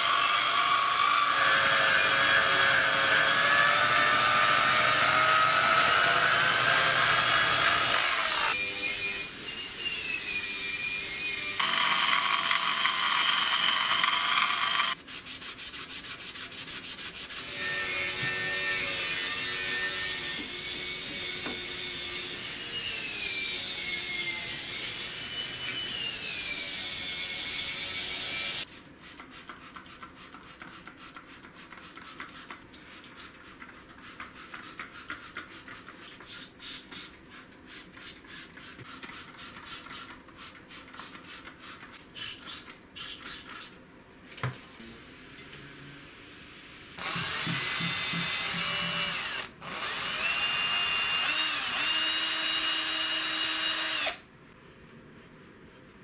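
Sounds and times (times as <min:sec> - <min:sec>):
power drill running: 0:00.0 - 0:15.0, 0:47.0 - 0:54.2.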